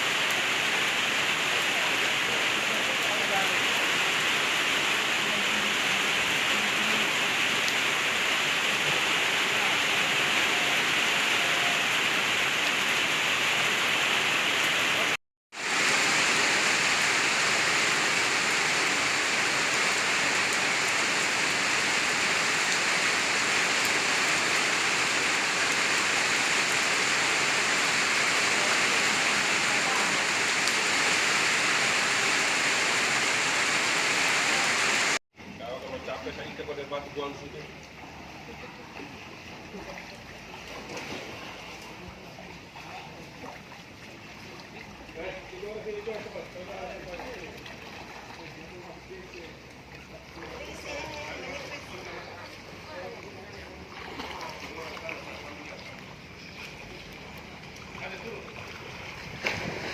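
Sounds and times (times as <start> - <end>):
heavy rain: 0.0 - 35.2.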